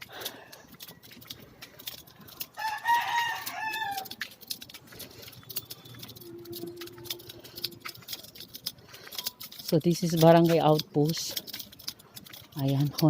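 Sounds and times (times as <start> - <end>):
rooster crowing: 2.5 - 4.3.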